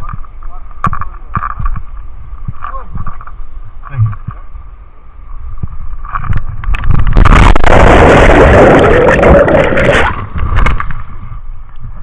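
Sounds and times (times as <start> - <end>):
whitewater rushing and splashing: 7.2 - 10.4.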